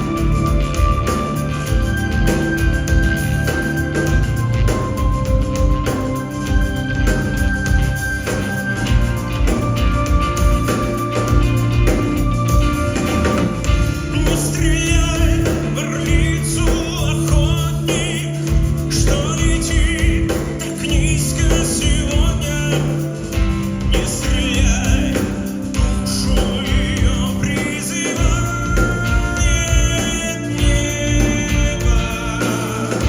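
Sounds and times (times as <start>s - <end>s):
band playing: 0.0s - 33.0s
man singing with vibrato: 13.7s - 33.0s.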